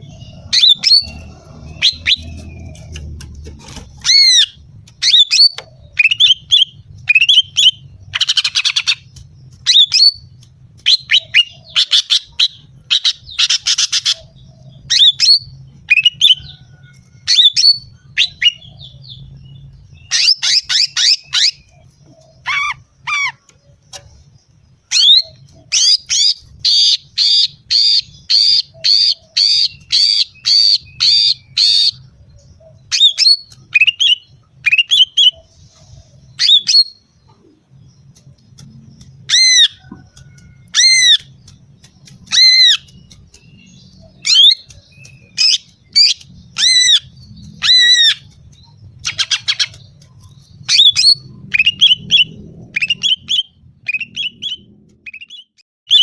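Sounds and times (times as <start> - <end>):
bird squawks and chirps: 0.0 - 3.0, 20.1 - 23.7, 24.9 - 32.0, 42.0 - 48.4
repeated bird notes: 0.0 - 56.0.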